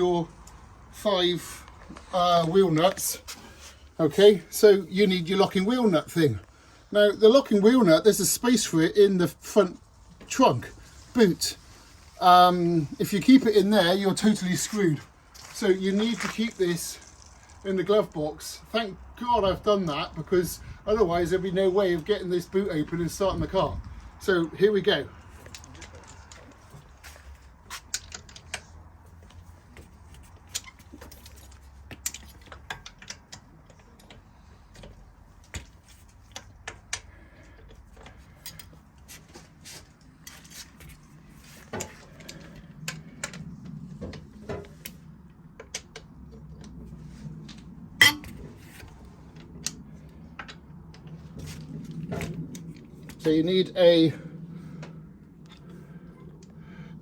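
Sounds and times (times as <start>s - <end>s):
metal tools clinking: 48.0s - 48.4s
sharp metal clack: 48.0s - 48.4s.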